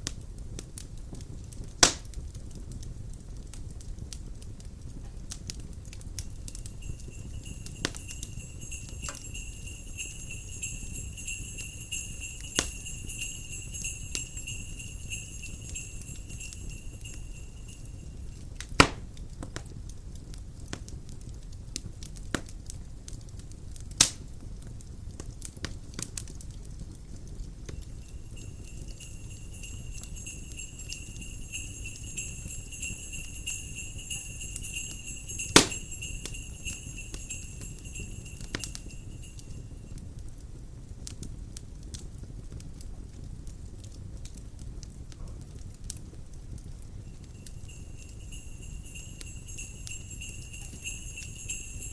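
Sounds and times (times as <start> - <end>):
crackling wood fire: 0.0 - 51.9
small sleigh bells shaking: 6.1 - 18.6, 27.5 - 40.1, 46.9 - 51.9.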